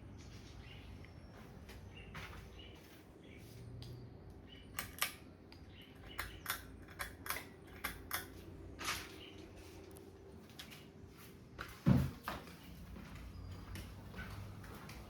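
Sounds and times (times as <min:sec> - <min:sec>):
sharp clicks: 0:04.6 - 0:09.0.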